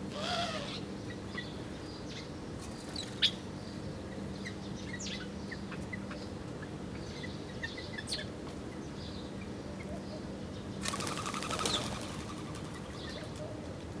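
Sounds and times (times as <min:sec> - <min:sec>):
bird wings flapping: 0:10.8 - 0:12.9.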